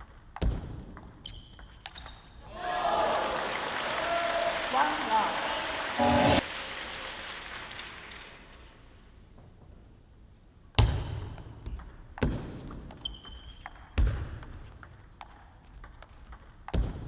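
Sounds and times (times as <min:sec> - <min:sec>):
heavy thuds echoing in a hall: 0:16.7 - 0:17.0.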